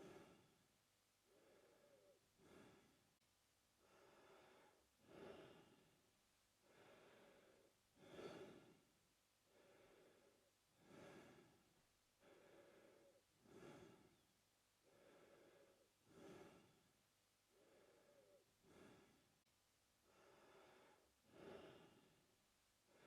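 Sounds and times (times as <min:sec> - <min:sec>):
man breathing through mouth: 0:01.3 - 0:03.0, 0:06.6 - 0:08.8, 0:09.5 - 0:11.6, 0:12.2 - 0:14.2, 0:14.8 - 0:16.9, 0:17.5 - 0:19.2, 0:20.1 - 0:22.1.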